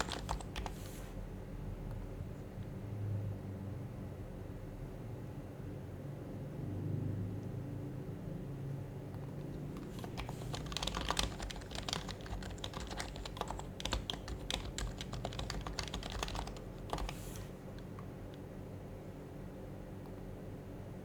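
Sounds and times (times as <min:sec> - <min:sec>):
keyboard keys clicking: 0:00.0 - 0:00.8, 0:09.2 - 0:18.4
steady low hum: 0:00.0 - 0:21.0.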